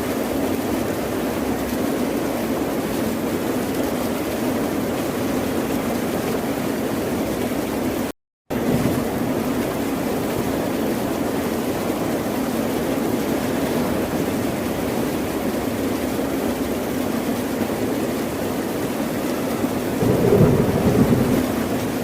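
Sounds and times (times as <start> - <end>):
ocean surf rushing: 20.0 - 22.0.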